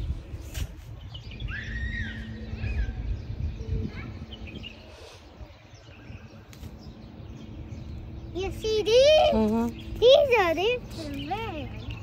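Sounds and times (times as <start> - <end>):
bird whistled call: 1.2 - 3.1.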